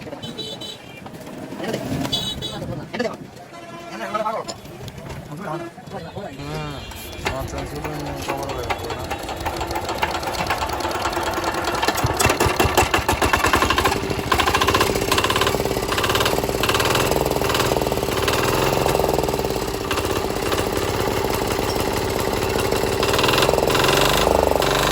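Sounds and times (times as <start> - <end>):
diesel engine running: 6.4 - 24.9.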